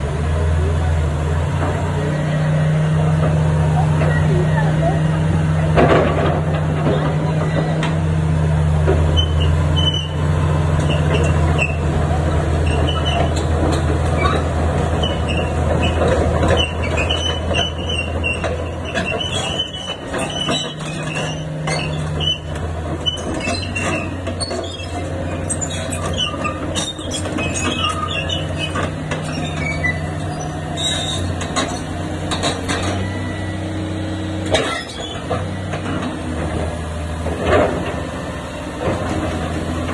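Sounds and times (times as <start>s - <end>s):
excavator diesel engine humming: 0.0s - 39.9s
high metallic squeaks: 9.1s - 11.9s, 12.5s - 33.8s, 34.6s - 35.7s.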